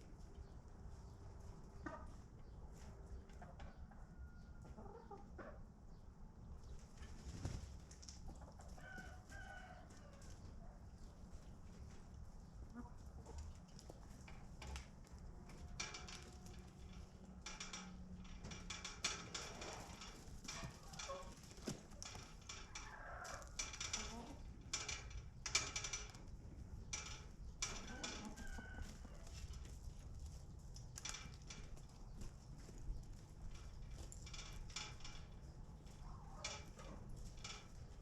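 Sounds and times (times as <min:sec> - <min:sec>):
chickens clucking: 0:01.6 - 0:05.8, 0:08.2 - 0:14.1, 0:19.6 - 0:24.4, 0:27.6 - 0:30.0.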